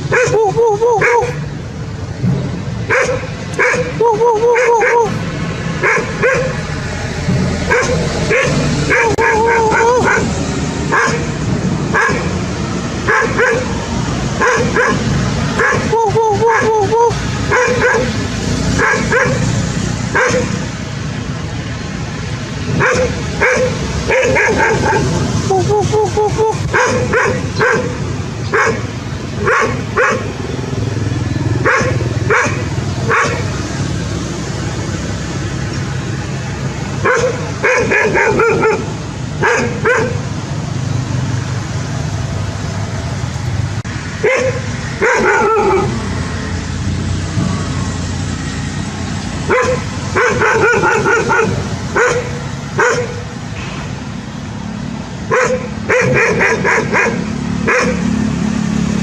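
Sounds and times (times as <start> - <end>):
dog barking: 0.1 - 1.4, 2.9 - 5.2, 5.8 - 6.6, 7.7 - 12.4, 13.1 - 13.8, 14.4 - 18.2, 18.8 - 19.5, 20.1 - 20.6, 22.8 - 25.2, 26.7 - 30.3, 31.6 - 33.5, 37.0 - 40.3, 44.2 - 46.0, 49.5 - 53.2, 55.3 - 58.1
dog yelping: 0.1 - 1.5, 2.9 - 5.2, 5.8 - 6.6, 7.6 - 11.3, 11.9 - 12.4, 13.1 - 13.8, 14.4 - 18.2, 18.8 - 19.5, 20.1 - 20.6, 22.8 - 30.3, 31.6 - 33.5, 37.0 - 40.2, 44.2 - 46.0, 49.5 - 53.2, 55.3 - 58.1.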